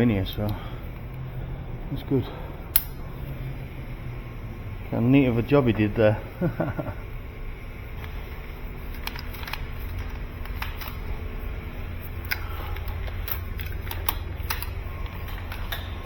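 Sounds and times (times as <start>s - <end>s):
steady low hum: 0.0s - 16.0s
cable carrier clicks and rattles: 8.0s - 16.0s.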